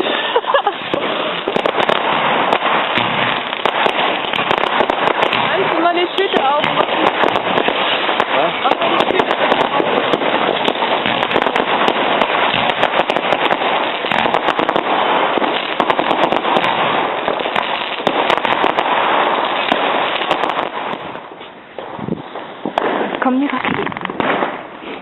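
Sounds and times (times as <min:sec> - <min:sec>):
fireworks banging and crackling: 0:00.0 - 0:25.0.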